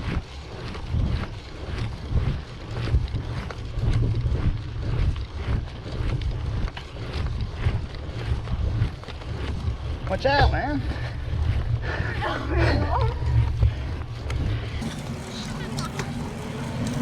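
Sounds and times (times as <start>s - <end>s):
wind buffeting microphone: 0.0s - 17.0s
bicycle clicks and rattles: 2.8s - 10.2s, 14.2s - 17.0s.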